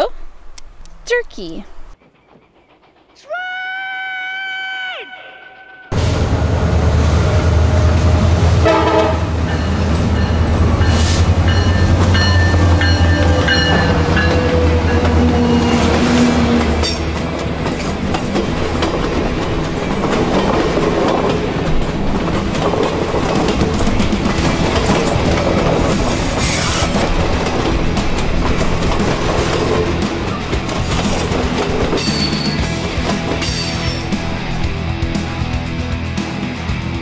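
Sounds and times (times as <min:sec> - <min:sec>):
diesel locomotive engine rumble: 0:05.2 - 0:36.9
wheels clicking over rail joints: 0:11.5 - 0:35.2.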